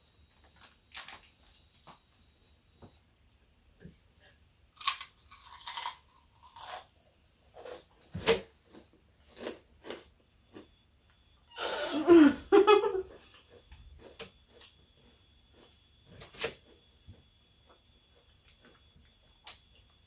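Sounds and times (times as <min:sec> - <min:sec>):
food crunching while chewing: 0:00.3 - 0:02.1, 0:04.7 - 0:10.8.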